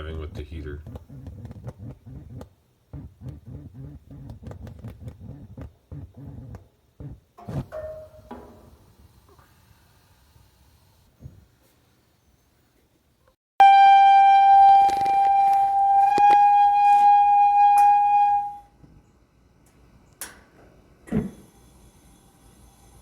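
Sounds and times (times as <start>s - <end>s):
heater high whistle: 13.6s - 18.8s.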